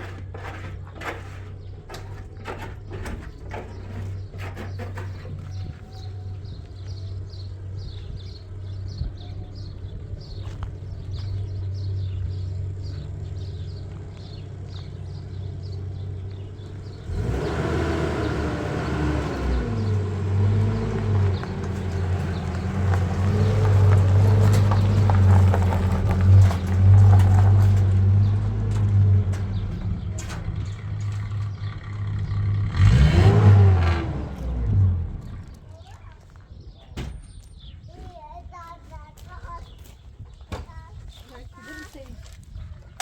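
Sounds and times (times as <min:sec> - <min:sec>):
vehicle engine revving: 0:04.0 - 0:35.6.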